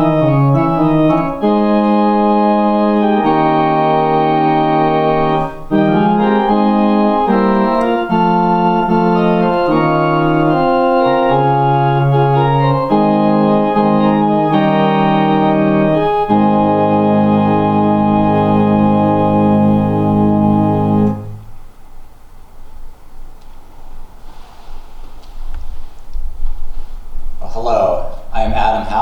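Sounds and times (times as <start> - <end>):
organ playing slow chords: 0.0 - 21.7.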